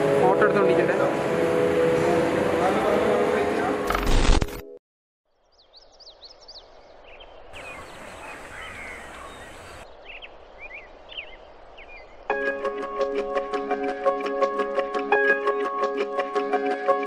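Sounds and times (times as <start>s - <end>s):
outdoor background hiss: 5.3s - 12.4s
small birds chirping: 5.3s - 12.4s
music with plucked notes: 12.3s - 17.0s.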